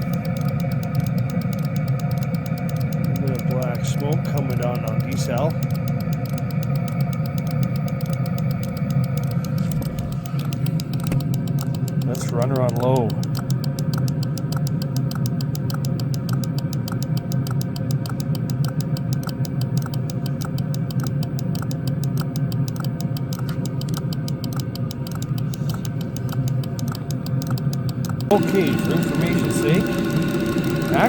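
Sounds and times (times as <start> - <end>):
fuel pump ticking: 0.0 - 31.0
heater blower humming: 23.4 - 31.0.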